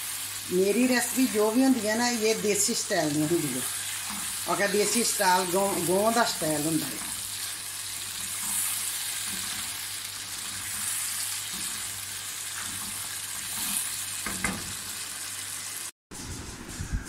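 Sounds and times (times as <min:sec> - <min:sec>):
meat sizzling in oil: 0:00.0 - 0:15.9
spatula stirring and scraping: 0:03.6 - 0:14.3.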